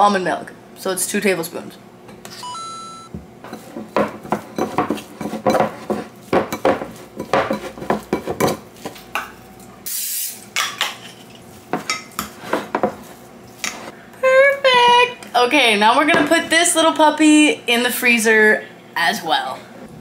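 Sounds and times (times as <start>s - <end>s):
fork tapping and scraping: 3.4s - 9.3s
metal utensil scraping ceramic bowl: 3.5s - 8.6s.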